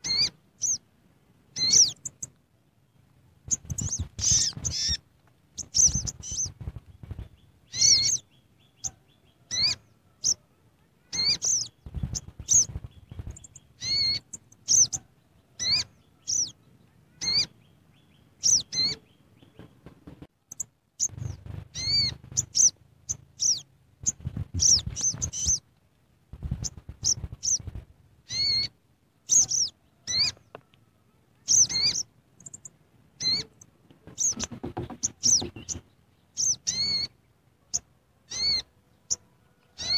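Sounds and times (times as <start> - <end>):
bird chirping: 0.0 - 0.9, 1.5 - 25.7, 26.4 - 39.9
low dull bumps: 21.0 - 22.6, 34.4 - 35.8.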